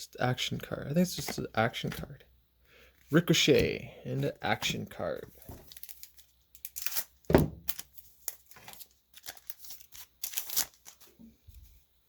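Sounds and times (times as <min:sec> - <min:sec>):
cards and wrapper rustling: 0:03.0 - 0:11.3.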